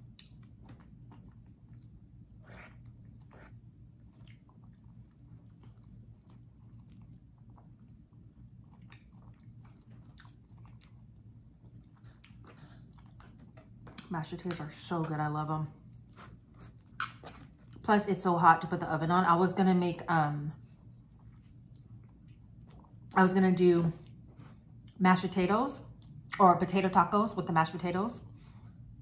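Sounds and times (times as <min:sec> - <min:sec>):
person chewing soft food: 0:00.0 - 0:14.2, 0:15.8 - 0:17.9, 0:20.6 - 0:23.2, 0:24.0 - 0:25.0
steady low hum: 0:00.0 - 0:29.0.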